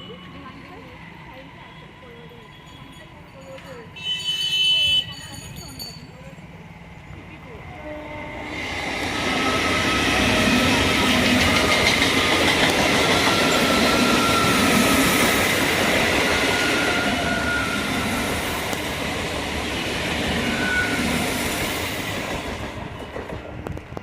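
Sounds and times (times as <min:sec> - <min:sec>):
train wheels rumbling on track: 0:00.0 - 0:24.0
faint high wheel squeal: 0:01.6 - 0:06.4, 0:13.1 - 0:15.4, 0:16.5 - 0:18.6, 0:20.4 - 0:21.4.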